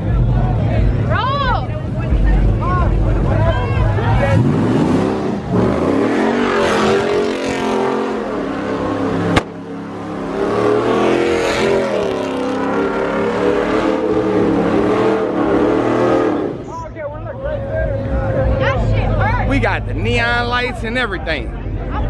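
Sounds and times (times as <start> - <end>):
car engine revving: 4.1 - 16.8
sharp bang: 9.3 - 9.8.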